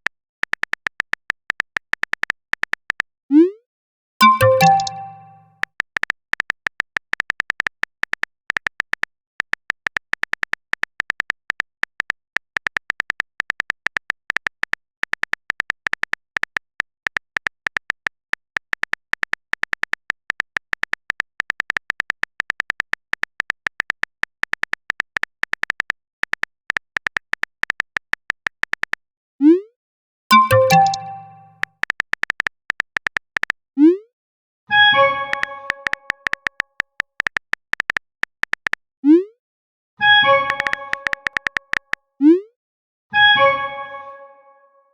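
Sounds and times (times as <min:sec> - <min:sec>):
soft typing ticks: 0:00.0 - 0:03.1, 0:04.2 - 0:29.0, 0:35.3 - 0:38.8, 0:40.4 - 0:42.0
notification chime: 0:04.2 - 0:05.5, 0:30.3 - 0:31.6.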